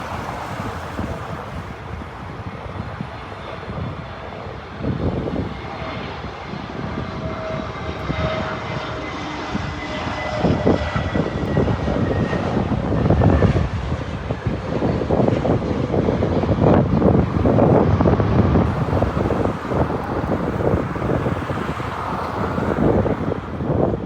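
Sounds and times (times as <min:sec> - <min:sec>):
jet engines rumbling with whine: 0:00.0 - 0:24.0.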